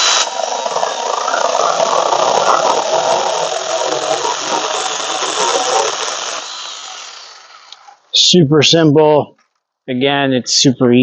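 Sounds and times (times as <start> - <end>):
electric chainsaw cutting branch: 0.0 - 8.2.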